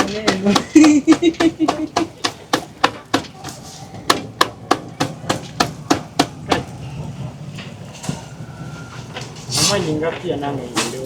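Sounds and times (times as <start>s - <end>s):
sharp blows of hand tool: 0.0s - 6.8s.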